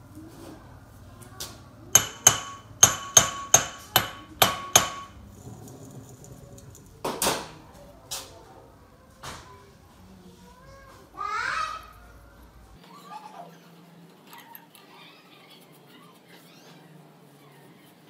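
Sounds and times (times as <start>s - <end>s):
hammer ringing on metal: 2.0s - 5.2s.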